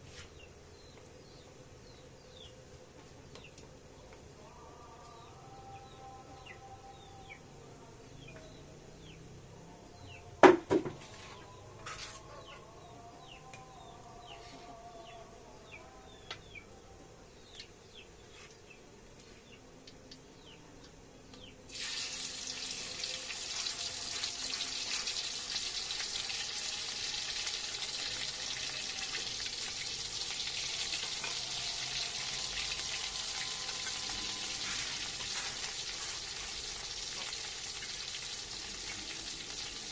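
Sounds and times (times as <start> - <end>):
sharp knock: 10.4 - 11.0
food sizzling in hot oil: 21.7 - 39.9.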